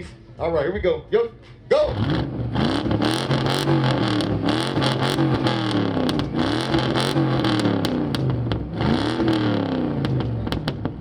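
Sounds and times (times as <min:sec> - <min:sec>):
car engine revving: 0:01.9 - 0:11.0.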